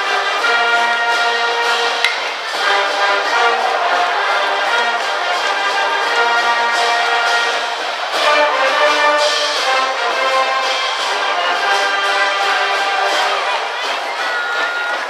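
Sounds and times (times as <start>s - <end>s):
brass band playing: 0.0s - 15.0s.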